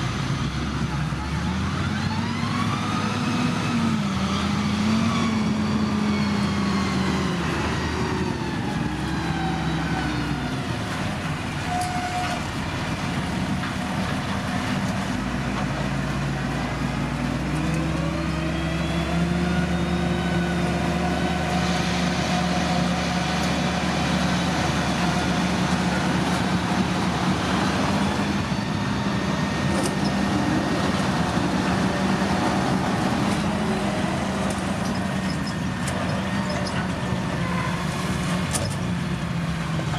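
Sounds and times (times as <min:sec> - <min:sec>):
diesel engine of heavy machinery: 0:00.0 - 0:39.9.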